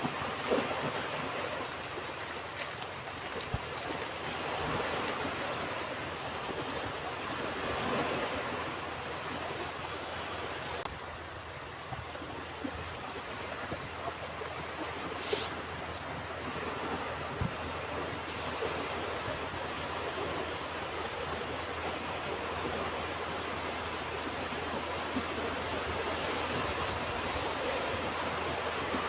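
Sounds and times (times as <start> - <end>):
sharp high hiss: 15.2 - 15.6.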